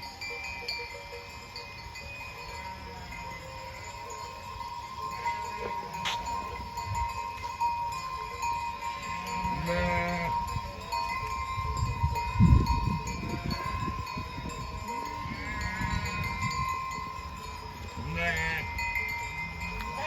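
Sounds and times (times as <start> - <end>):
livestock wavering cries: 8.8 - 10.5, 13.0 - 14.0, 14.8 - 16.5, 18.0 - 20.0.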